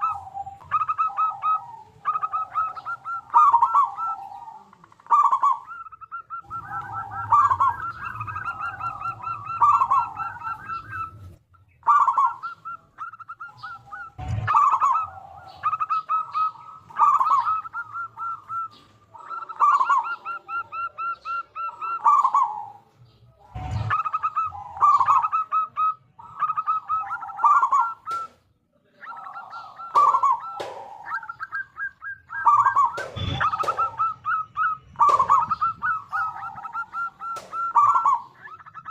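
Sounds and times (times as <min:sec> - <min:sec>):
dove cooing: 0:00.0 - 0:38.9
sharp knocks: 0:32.9 - 0:34.0.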